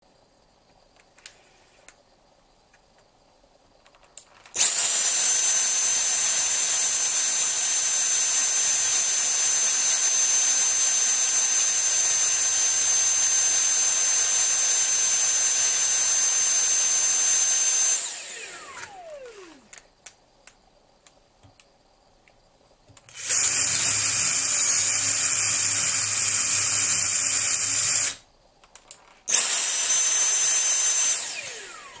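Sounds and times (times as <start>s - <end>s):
cordless drill drilling: 4.5s - 19.8s, 23.1s - 28.2s, 29.3s - 32.0s
handheld vacuum motor whining: 4.5s - 19.8s, 23.1s - 28.2s, 29.3s - 32.0s.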